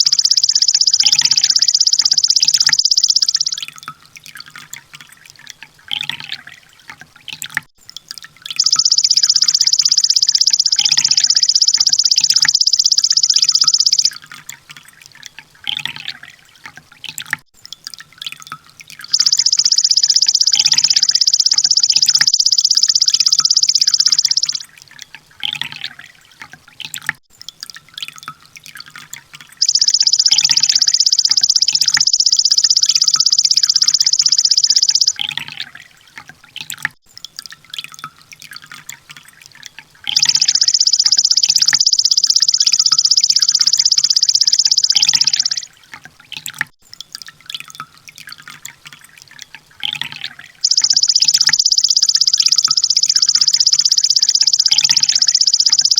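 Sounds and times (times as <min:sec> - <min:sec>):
bird high rapid trill: 0:00.0 - 0:03.6, 0:08.6 - 0:14.1, 0:19.1 - 0:24.6, 0:29.6 - 0:35.2, 0:40.1 - 0:45.7, 0:50.6 - 0:55.9
soft bird chirps: 0:00.0 - 0:03.7, 0:08.6 - 0:14.1, 0:19.1 - 0:24.7, 0:29.6 - 0:35.4, 0:40.1 - 0:45.7, 0:49.9 - 0:55.9.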